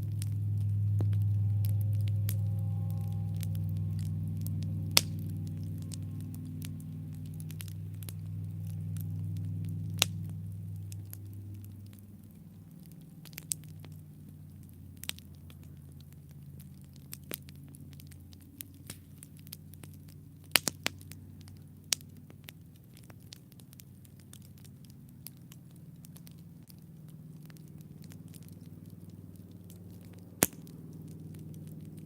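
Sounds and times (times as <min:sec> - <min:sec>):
campfire crackling and popping: 0:00.0 - 0:32.0
low steady hum: 0:00.0 - 0:32.0.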